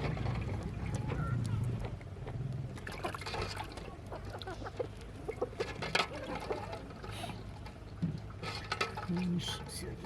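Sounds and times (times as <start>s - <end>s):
liquid pouring and sloshing: 2.8s - 9.9s.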